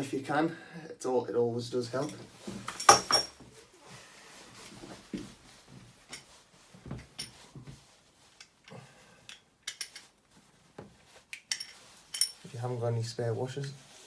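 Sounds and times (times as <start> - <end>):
shower fittings clicking and knocking: 2.0 - 3.4, 8.4 - 10.1, 11.3 - 12.4.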